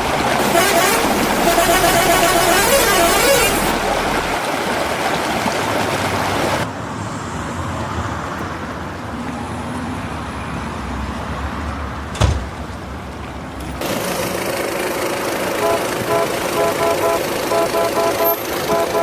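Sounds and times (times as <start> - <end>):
vehicle engine and road noise: 0.0 - 19.0
sharp knock: 12.2 - 12.6.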